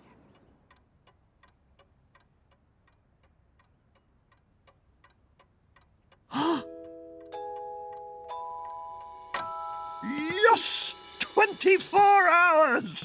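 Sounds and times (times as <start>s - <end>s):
clock ticking: 0.0s - 13.0s
sudden gasp-like burst: 6.3s - 6.7s.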